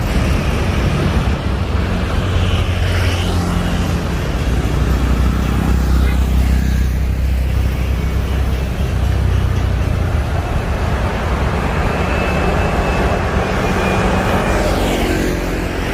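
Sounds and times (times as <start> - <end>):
jet engines deep rumble: 0.0 - 2.9.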